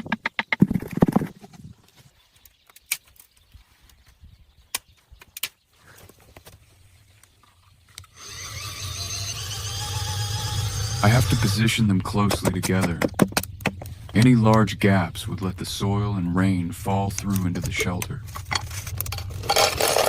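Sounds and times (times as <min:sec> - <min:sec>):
wooden logs knocking: 0:00.0 - 0:01.7, 0:12.0 - 0:14.6
steady humming with held tones: 0:06.8 - 0:20.0.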